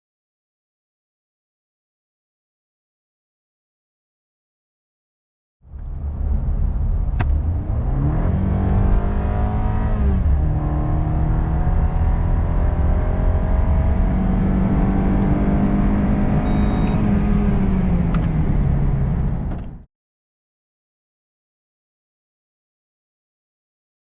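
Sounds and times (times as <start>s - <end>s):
road rumble: 5.6s - 19.9s
car engine accelerating: 5.7s - 19.8s
short high beep: 16.4s - 17.0s.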